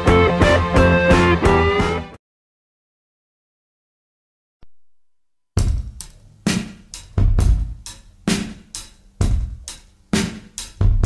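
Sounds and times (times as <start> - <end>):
drum kit beat: 0.0 - 2.2, 5.6 - 11.0.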